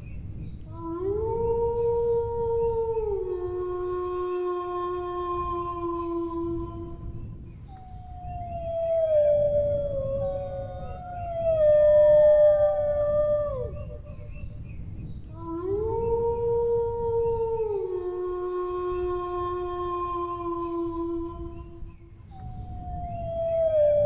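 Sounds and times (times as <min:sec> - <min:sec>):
dogs howling: 0:07.7 - 0:14.4, 0:22.3 - 0:24.0.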